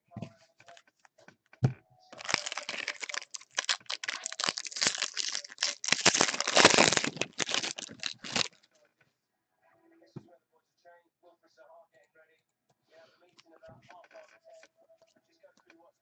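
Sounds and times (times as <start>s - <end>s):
plastic wrapper crinkling: 2.2s - 8.7s.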